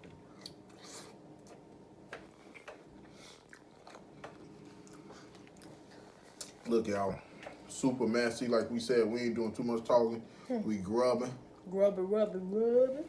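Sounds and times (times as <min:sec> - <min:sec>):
chewing: 0:02.4 - 0:06.6.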